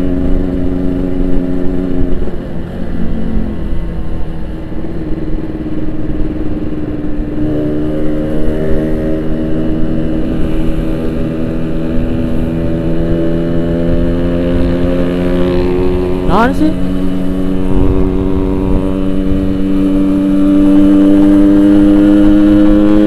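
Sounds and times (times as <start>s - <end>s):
two-stroke motorcycle engine: 5.8s - 23.0s.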